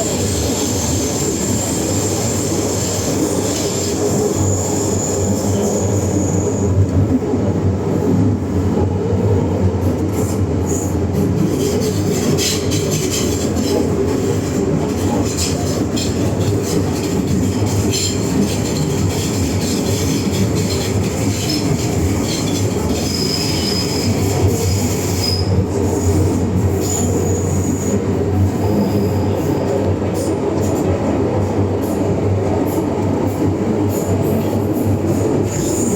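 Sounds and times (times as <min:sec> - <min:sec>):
wheels rumbling on rail: 0:00.0 - 0:35.9
high wheel squeals: 0:22.4 - 0:26.1.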